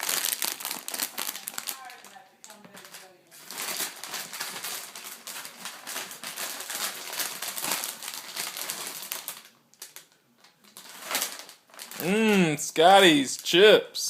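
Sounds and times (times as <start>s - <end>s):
chips being crunched: 0.0s - 1.8s
chip bag crackling: 0.0s - 12.6s.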